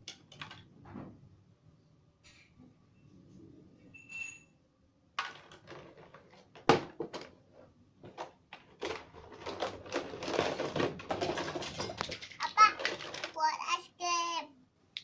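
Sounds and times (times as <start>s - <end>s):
plastic toy pieces clattering: 8.1s - 13.8s.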